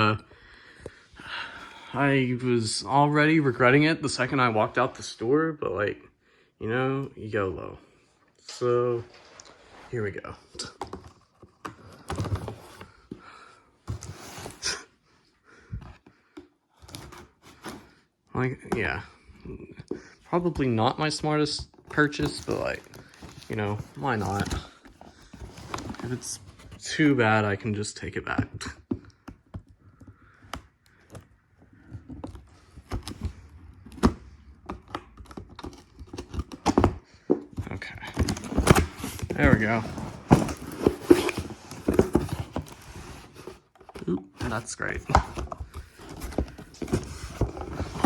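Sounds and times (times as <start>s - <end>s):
cardboard scraping and rustling: 9.0s - 13.2s, 13.9s - 14.7s, 16.8s - 18.0s, 21.5s - 27.2s, 31.8s - 48.0s.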